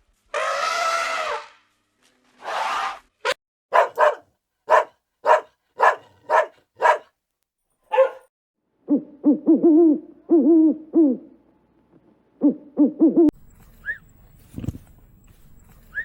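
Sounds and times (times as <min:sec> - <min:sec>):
dog barking: 0:03.7 - 0:07.1, 0:07.9 - 0:08.3
drawn-out animal calls: 0:03.8 - 0:07.0, 0:07.9 - 0:08.2.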